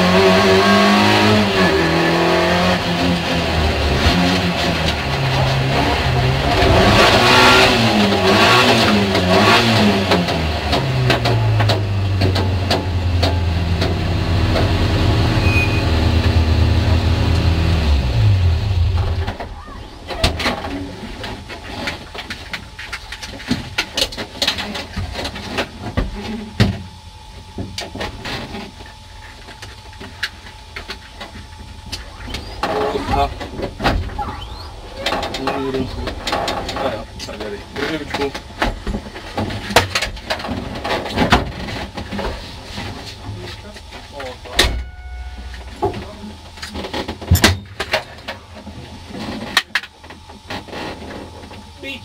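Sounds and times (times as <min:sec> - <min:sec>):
rally car engine revving: 0:00.0 - 0:22.0, 0:31.8 - 0:43.6.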